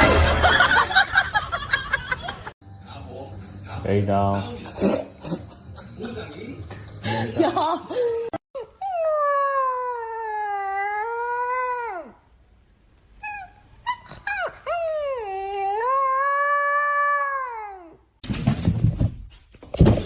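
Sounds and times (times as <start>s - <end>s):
dog yelping: 13.2s - 16.3s.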